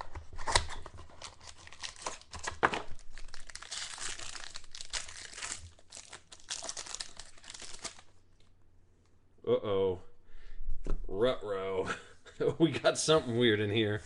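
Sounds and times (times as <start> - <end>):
card pack crinkling and tearing: 0.0 - 8.2.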